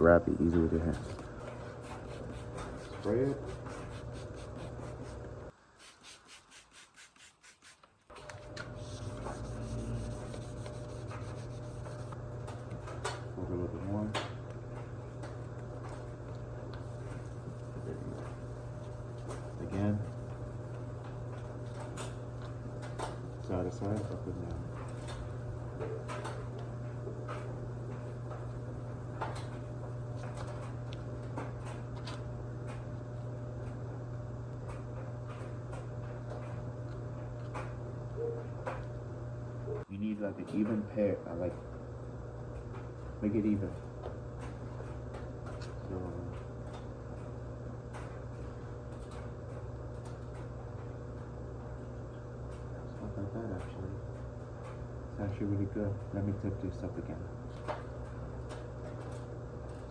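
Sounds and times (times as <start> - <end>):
steady low hum: 0.0 - 7.3, 8.1 - 59.9
wet sandpaper rubbing on plastic: 1.8 - 8.0, 8.8 - 12.2, 16.8 - 25.4.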